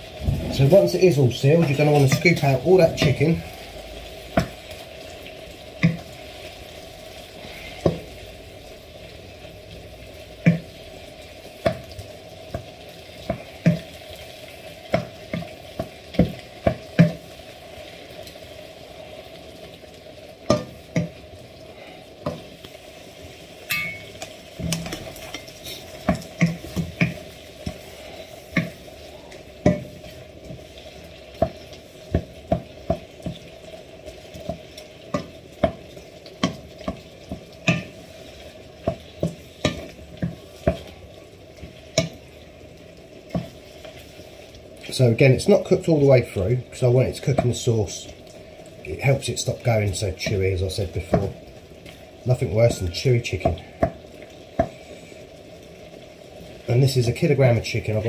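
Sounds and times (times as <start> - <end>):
chicken sizzling in frying pan: 0.0 - 58.0
wooden spoon knocking on pan: 4.3 - 4.6, 5.8 - 6.1, 10.4 - 10.8, 11.6 - 13.9, 14.9 - 17.2, 20.5 - 21.2, 23.7 - 25.4, 26.0 - 27.8, 28.5 - 28.8, 29.6 - 30.1, 31.4 - 33.5, 34.4 - 38.0, 38.8 - 40.9, 43.3 - 43.6, 53.4 - 54.0.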